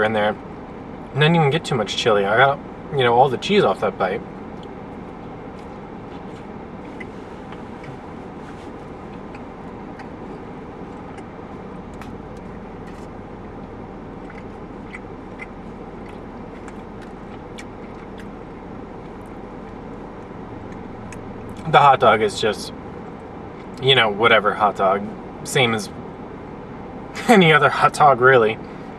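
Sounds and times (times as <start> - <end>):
low hum and hiss: 0.0 - 28.9
person chewing food: 4.4 - 21.7.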